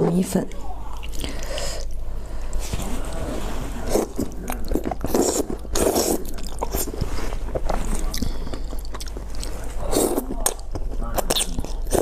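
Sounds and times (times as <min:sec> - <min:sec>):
person biting and chewing: 0:04.0 - 0:12.0.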